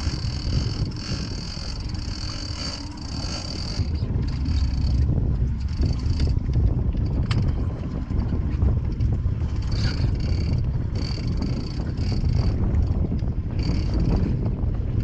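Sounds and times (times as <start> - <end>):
boat engine rumbling: 0.0 - 15.0
wind buffeting microphone: 0.0 - 15.0.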